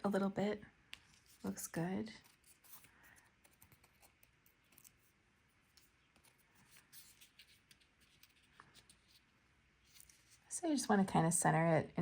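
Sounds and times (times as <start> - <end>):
paper cardstock ticks and rustles: 2.2 - 10.5.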